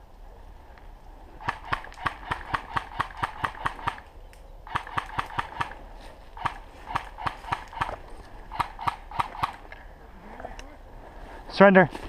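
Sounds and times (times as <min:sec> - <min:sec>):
airsoft gun rapid firing: 0:01.4 - 0:04.0, 0:04.7 - 0:05.8, 0:06.4 - 0:09.6.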